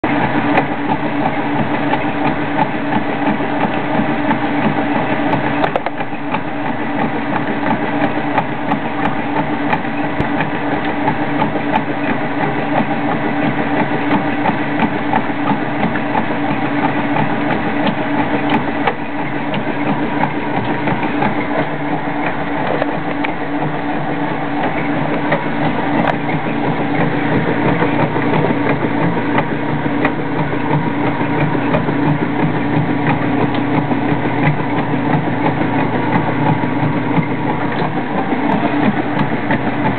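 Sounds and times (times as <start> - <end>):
washing machine running: 0.0 - 39.9.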